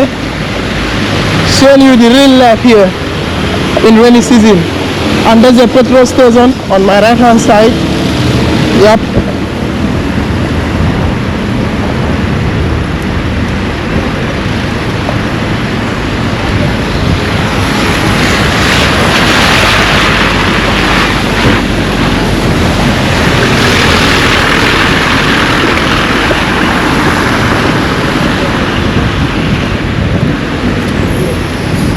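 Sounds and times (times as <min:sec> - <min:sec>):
rain: 0:00.0 - 0:31.9
wind buffeting microphone: 0:00.0 - 0:31.9.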